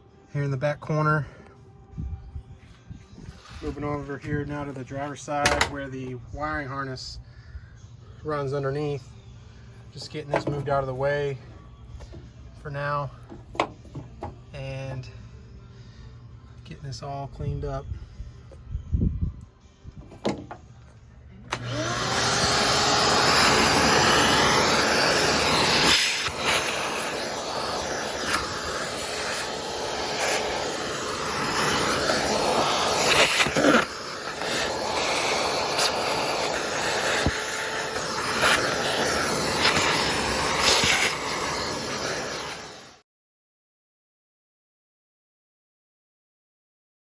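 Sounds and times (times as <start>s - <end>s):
shop vacuum running: 21.4s - 43.0s.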